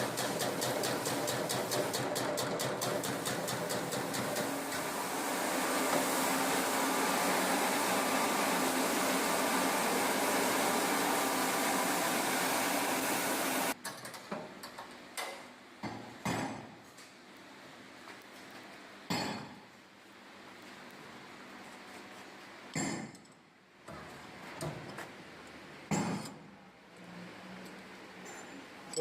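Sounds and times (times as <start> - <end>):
slicing machine running: 0.0 - 13.8.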